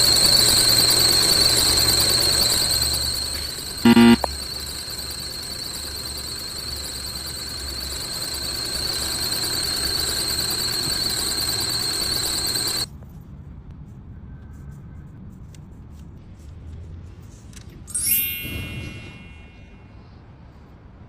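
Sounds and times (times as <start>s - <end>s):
high-pitched squeal: 0.0s - 12.9s
low hum: 0.0s - 12.9s.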